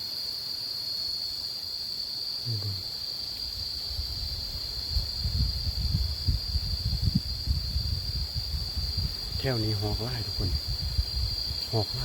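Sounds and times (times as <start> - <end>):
insects droning: 0.0 - 12.0
wind buffeting microphone: 3.5 - 12.0.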